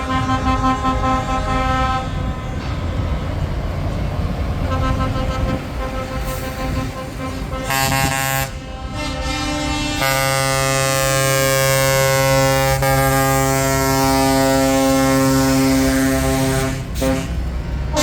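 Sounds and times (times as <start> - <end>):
truck air horns: 0.0 - 3.0, 4.6 - 18.0
passing truck engines rumbling: 0.0 - 18.0.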